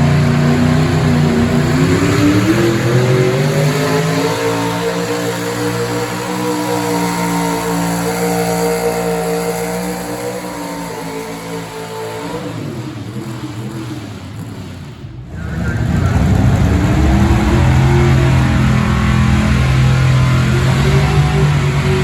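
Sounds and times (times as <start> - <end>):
truck engine at high revs: 0.0 - 22.0
deep rumbling sound: 14.9 - 22.0.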